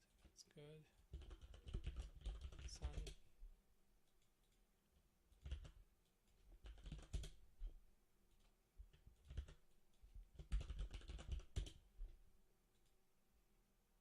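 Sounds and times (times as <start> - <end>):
computer keyboard typing: 1.0 - 3.2, 5.3 - 7.4, 8.3 - 11.8.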